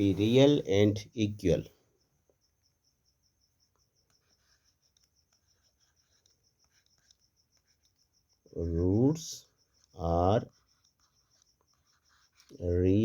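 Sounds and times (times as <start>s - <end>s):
pen writing on paper: 3.7s - 8.5s, 9.5s - 13.0s.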